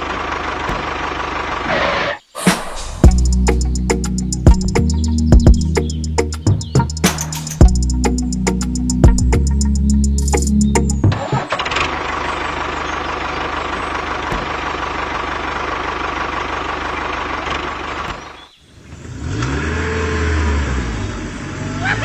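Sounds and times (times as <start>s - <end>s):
motor revving: 19.0s - 22.0s.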